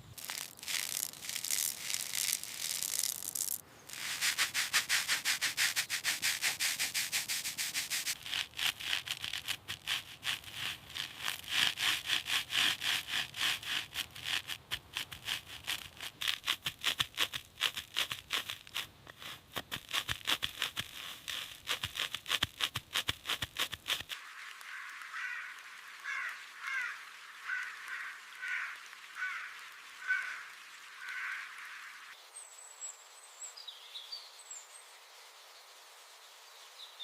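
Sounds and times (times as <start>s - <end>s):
rapid rhythmic rubbing strokes: 0.2s - 25.0s.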